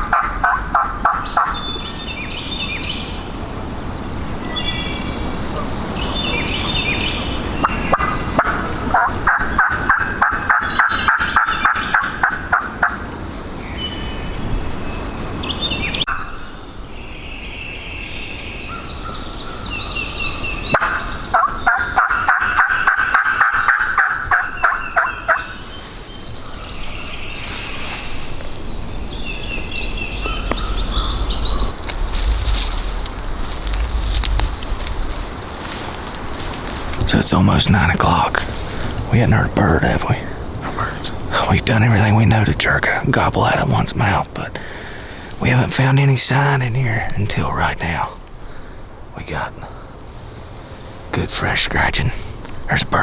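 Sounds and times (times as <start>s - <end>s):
turkey gobbling: 0.0s - 1.6s, 7.6s - 13.1s, 20.7s - 25.5s
small birds chirping: 1.1s - 12.3s, 13.0s - 23.3s, 24.4s - 50.2s.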